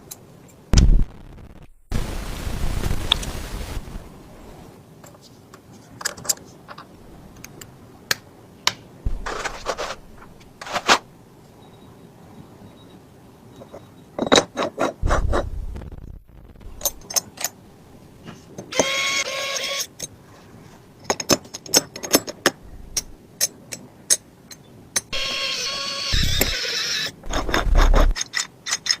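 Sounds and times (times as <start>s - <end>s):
low thuds: 0.7s - 3.1s, 9.0s - 10.5s, 15.0s - 17.0s
small motor whirring: 25.1s - 28.2s.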